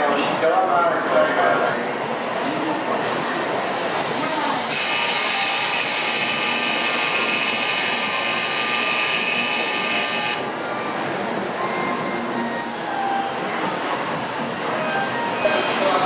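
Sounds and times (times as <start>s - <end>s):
high-pitched electric bell ringing: 6.1s - 10.4s.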